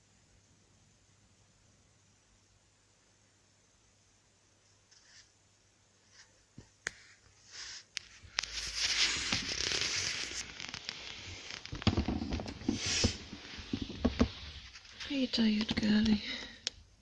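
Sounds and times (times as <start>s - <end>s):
rustling and crackling: 6.0s - 16.8s.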